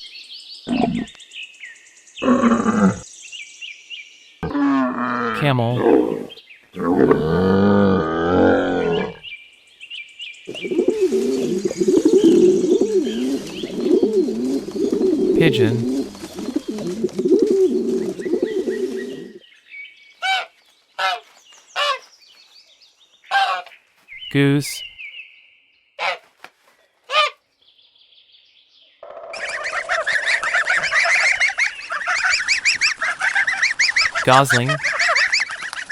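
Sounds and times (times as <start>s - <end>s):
small birds chirping: 8.8s - 35.9s
pigeons cooing: 10.5s - 19.4s
geese calling: 20.2s - 22.1s, 23.3s - 23.7s.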